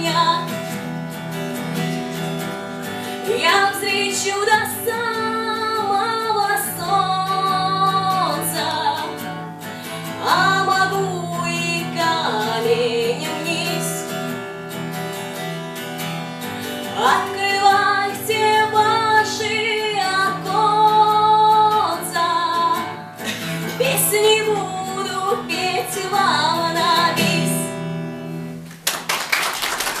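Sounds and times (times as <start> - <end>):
woman singing: 0.0 - 0.8, 3.2 - 9.4, 10.0 - 14.4, 16.8 - 28.0
acoustic guitar: 0.0 - 30.0.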